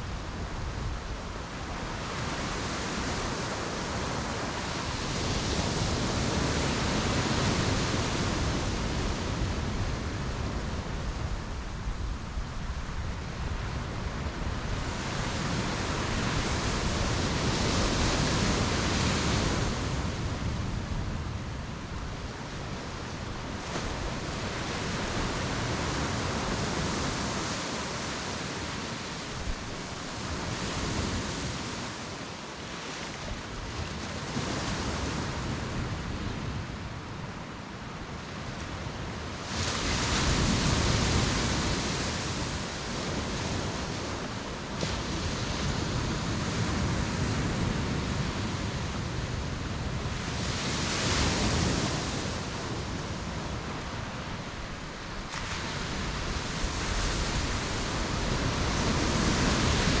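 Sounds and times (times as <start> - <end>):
ocean surf breaking: 39.4 - 60.0.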